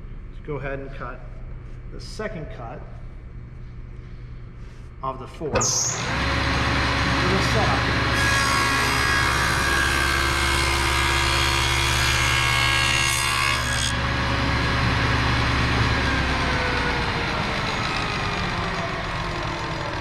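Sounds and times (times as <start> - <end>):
table saw blade cutting: 5.6 - 20.0
table saw running: 5.6 - 20.0.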